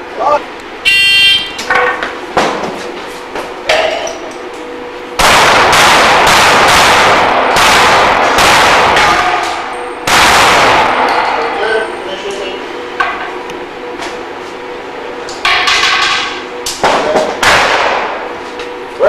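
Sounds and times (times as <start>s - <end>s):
pistol shots: 5.2s - 11.3s, 17.4s - 18.2s.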